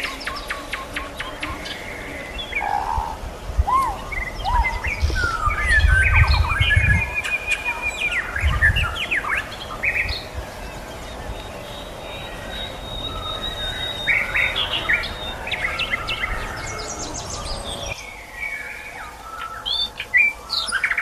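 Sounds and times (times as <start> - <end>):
bird trill: 0.0 - 21.0
birds singing with whistles: 0.0 - 21.0.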